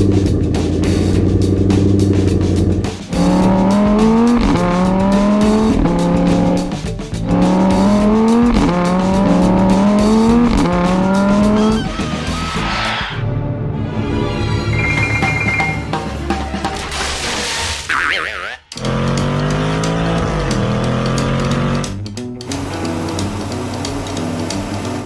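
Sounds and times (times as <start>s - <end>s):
racing car engine revving: 0.0s - 13.2s, 18.8s - 25.0s
cartoon music: 10.7s - 13.0s, 17.9s - 18.8s
hissing screech: 11.1s - 13.3s.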